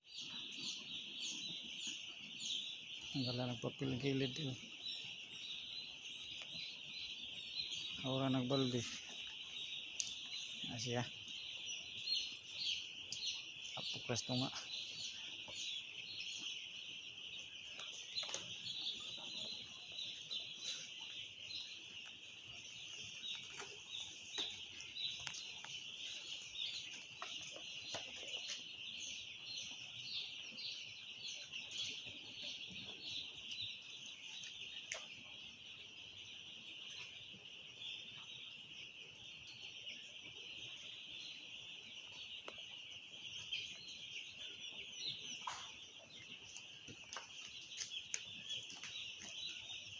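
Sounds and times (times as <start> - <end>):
chicks peeping: 0.0 - 49.9.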